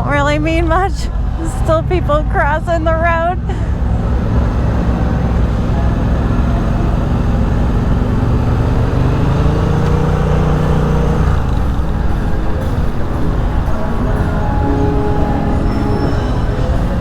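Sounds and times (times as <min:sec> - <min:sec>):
motorcycle engine running: 0:00.0 - 0:17.0
street traffic: 0:00.0 - 0:17.0.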